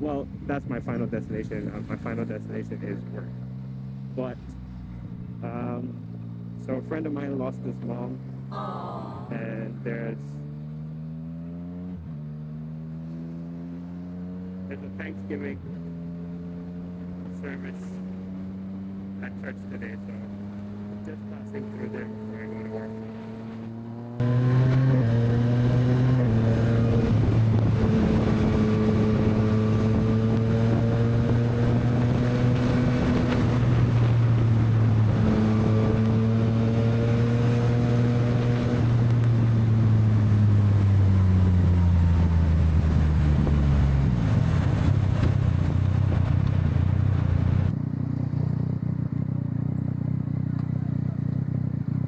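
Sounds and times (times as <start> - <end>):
motorcycle engine running: 0.0 - 52.0
wind rushing over microphone: 24.2 - 47.7.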